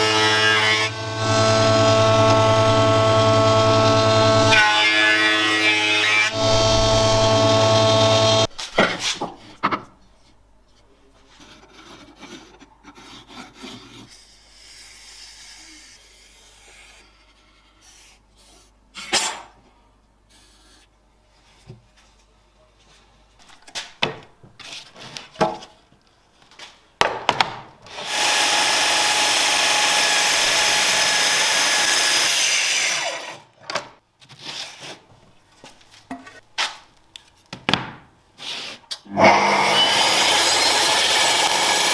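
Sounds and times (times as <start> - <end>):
power tool running: 0.0 - 8.5, 27.9 - 33.4, 39.2 - 41.9.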